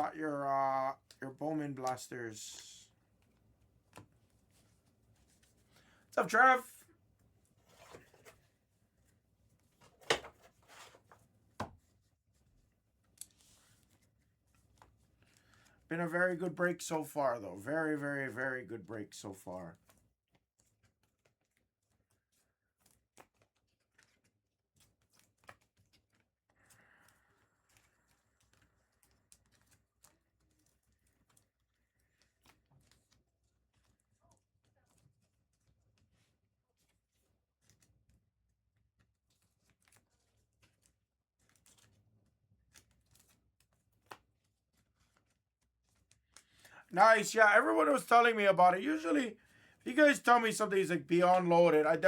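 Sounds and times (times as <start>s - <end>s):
trading cards ticking and rustling: 0.0s - 6.7s, 39.3s - 42.0s, 42.7s - 49.3s, 49.9s - 52.0s.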